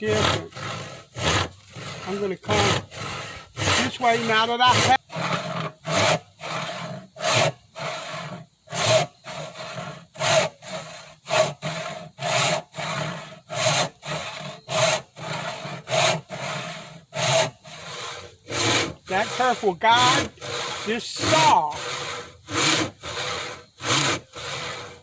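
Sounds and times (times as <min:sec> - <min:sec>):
hand saw cutting wood: 0:00.0 - 0:25.0.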